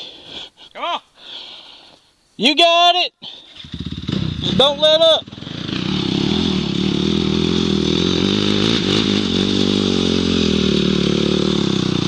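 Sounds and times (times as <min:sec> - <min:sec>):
dirt bike engine revving: 0:03.6 - 0:12.0.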